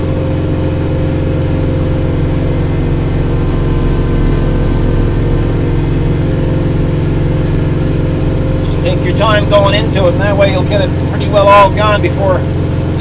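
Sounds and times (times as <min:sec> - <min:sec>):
snowblower clearing snow: 0:00.0 - 0:13.0
tractor diesel engine running: 0:00.0 - 0:13.0.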